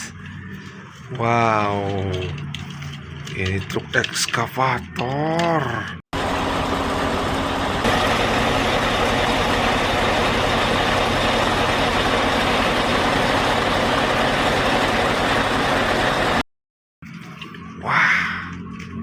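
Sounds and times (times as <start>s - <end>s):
diesel engine running: 6.2s - 16.4s.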